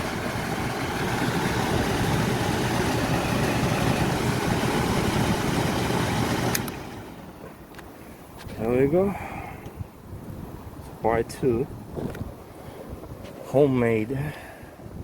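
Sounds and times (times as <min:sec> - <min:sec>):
air conditioning unit running: 0:00.0 - 0:07.4.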